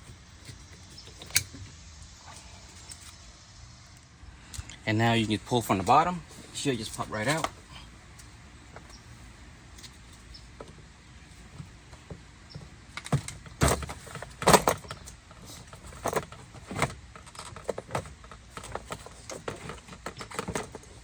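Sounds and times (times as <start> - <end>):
panel clicking and rattling: 12.5 - 21.0.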